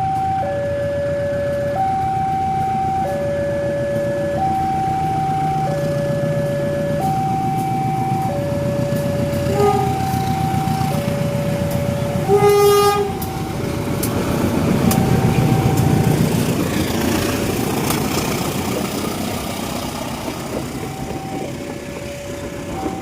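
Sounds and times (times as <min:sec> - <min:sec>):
crossing alarm two-tone: 0:00.0 - 0:13.9, 0:14.6 - 0:16.4, 0:20.3 - 0:23.0
train rumbling past: 0:00.0 - 0:23.0
train horn blast: 0:09.2 - 0:10.9, 0:11.8 - 0:13.5.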